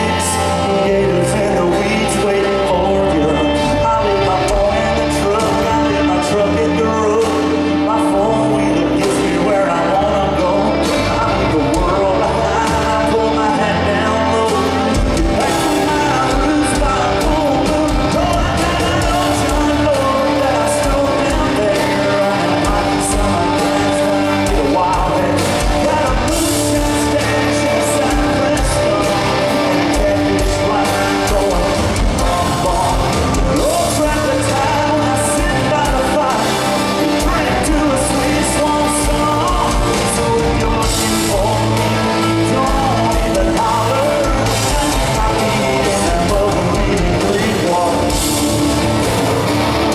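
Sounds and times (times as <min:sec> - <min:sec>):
country rock band playing: 0:00.0 - 0:49.9
lead singer singing: 0:00.0 - 0:49.9
drum beat: 0:14.9 - 0:49.9.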